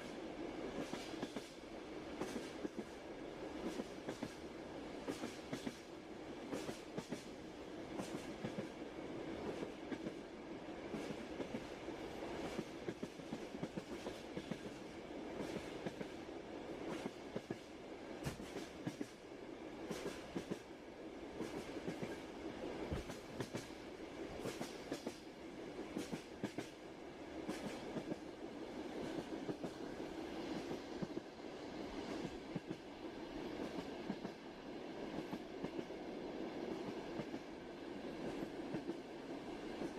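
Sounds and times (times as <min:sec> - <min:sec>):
train wheels rumbling on rails: 0:00.0 - 0:39.9
clickety-clack of wheels: 0:00.8 - 0:01.6, 0:02.2 - 0:03.0, 0:03.6 - 0:04.4, 0:05.1 - 0:05.9, 0:06.5 - 0:07.3, 0:08.0 - 0:08.7, 0:10.9 - 0:11.7, 0:12.4 - 0:16.2, 0:16.9 - 0:19.2, 0:19.9 - 0:20.6, 0:21.4 - 0:22.2, 0:22.9 - 0:23.7, 0:24.4 - 0:25.2, 0:26.0 - 0:26.8, 0:27.5 - 0:28.2.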